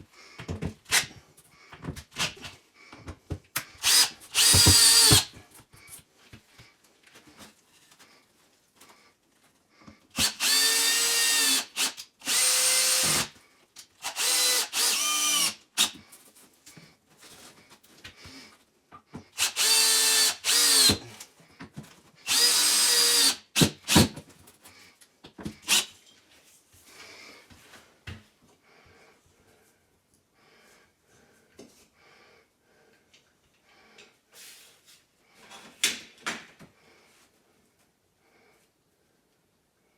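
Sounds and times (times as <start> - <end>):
power drill short bursts: 3.8 - 5.3, 10.2 - 13.3, 14.0 - 16.0, 19.4 - 21.0, 22.3 - 24.1.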